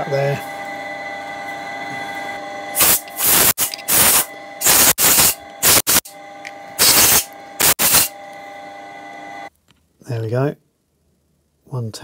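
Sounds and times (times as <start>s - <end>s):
steady background hum: 0.0s - 12.0s
sharp hissing spray blasts: 2.8s - 6.1s, 6.8s - 8.1s.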